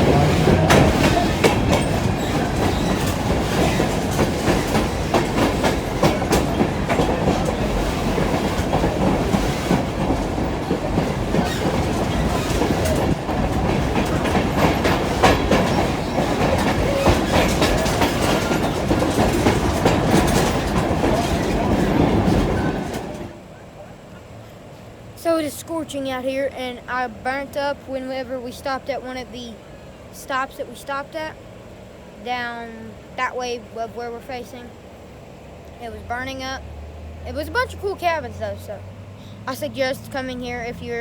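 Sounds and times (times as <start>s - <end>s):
wheels clacking over rail joints: 0.0s - 23.9s
train wheels rumbling on rail: 0.0s - 41.0s.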